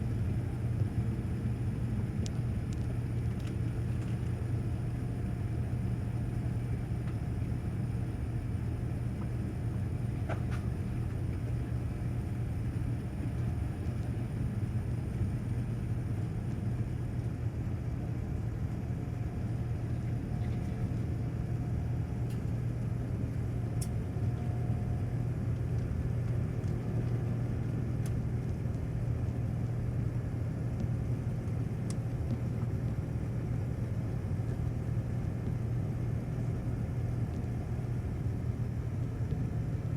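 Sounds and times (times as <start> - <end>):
airplane cabin engine rumble: 0.0 - 39.9
faint ticks: 31.8 - 33.0.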